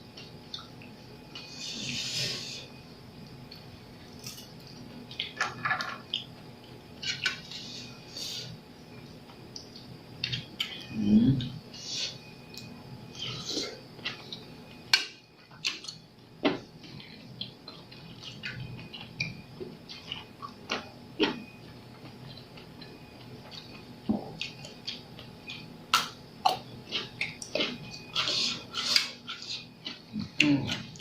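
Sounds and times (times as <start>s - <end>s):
chewing and mouth noises: 22.0s - 31.0s.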